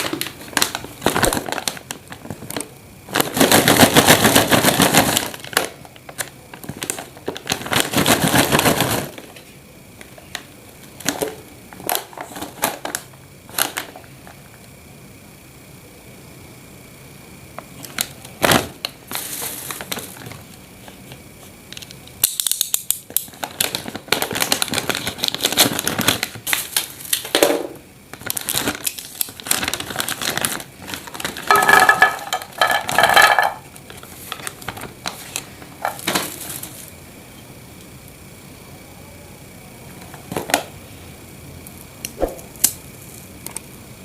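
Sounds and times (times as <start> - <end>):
snack packaging crinkling: 0.0 - 9.4, 10.3 - 14.4, 17.8 - 27.4, 28.1 - 37.0.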